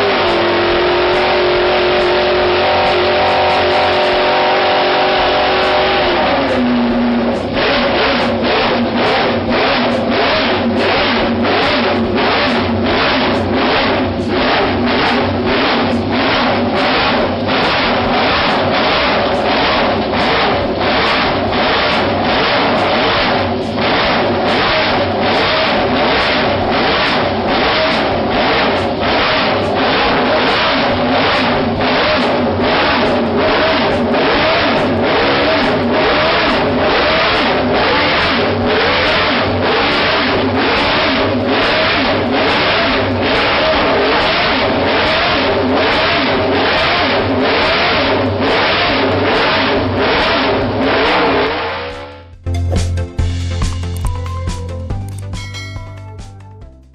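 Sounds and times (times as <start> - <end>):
background music with steady beat: 0.0 - 24.4, 50.6 - 56.9
car engine revving: 0.0 - 52.9.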